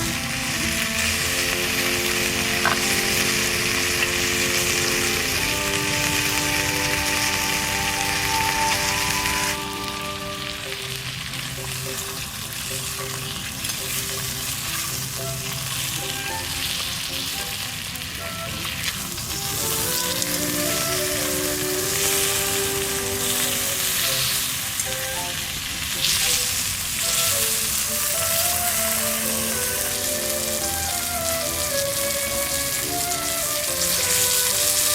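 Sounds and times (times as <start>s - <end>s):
food sizzling in frying pan: 0.0s - 34.9s.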